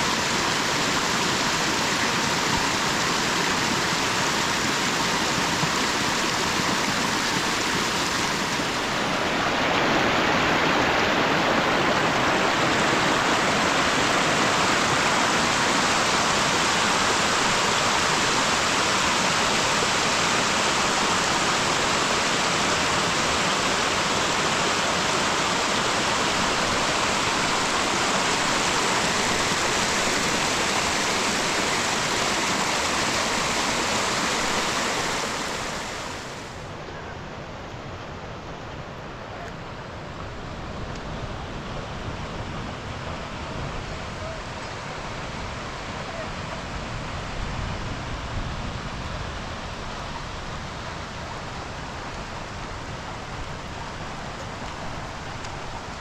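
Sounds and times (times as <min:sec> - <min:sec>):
heavy rain falling: 0:00.0 - 0:36.5, 0:50.1 - 0:56.0.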